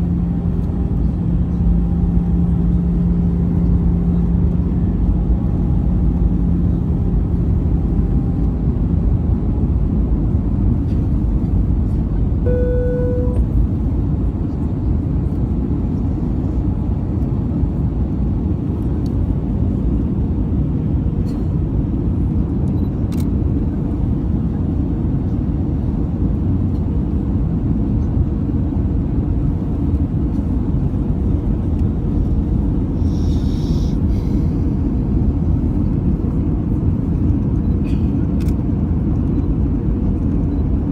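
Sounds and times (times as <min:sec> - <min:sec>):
airplane cabin rumble: 0:00.0 - 0:40.9
brief steady tone: 0:12.4 - 0:13.6.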